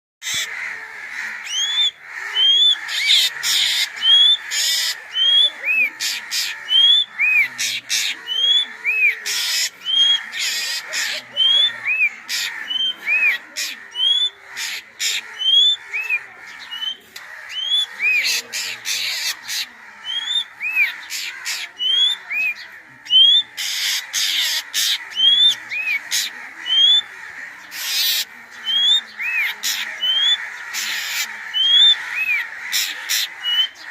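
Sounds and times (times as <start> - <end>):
crows cawing: 0.2 - 33.9.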